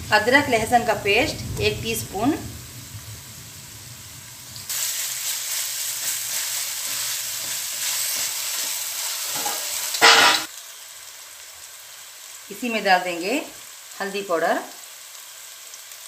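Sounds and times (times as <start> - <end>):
onions sizzling in hot oil: 0.0 - 16.0
wooden spatula stirring: 5.8 - 10.2.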